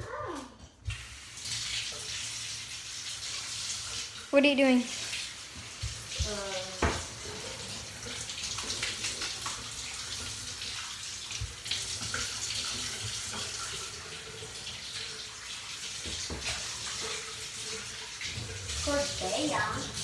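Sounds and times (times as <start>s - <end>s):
tap water running into basin: 0.1s - 20.0s.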